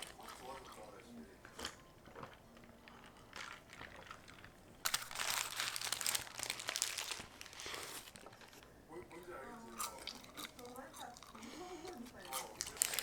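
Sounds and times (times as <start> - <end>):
packaging crinkling: 2.9 - 8.7, 12.4 - 13.0.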